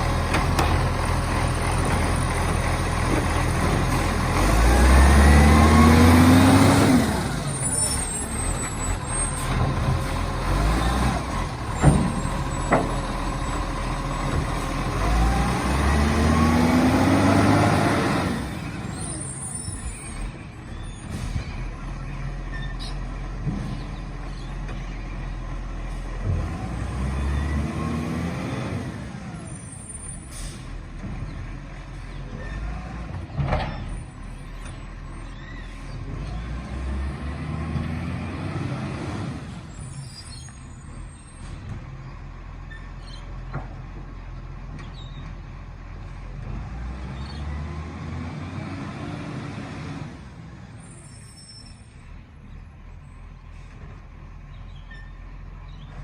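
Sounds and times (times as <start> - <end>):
diesel engine revving: 0.0 - 56.0
air brake hisses: 30.2 - 30.8.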